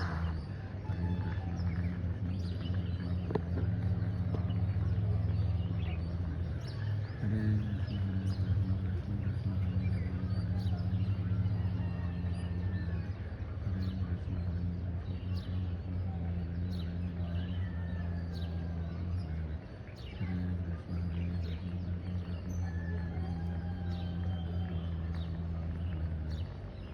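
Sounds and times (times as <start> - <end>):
birds chirping: 0.0 - 26.9
steady low hum: 0.0 - 26.9.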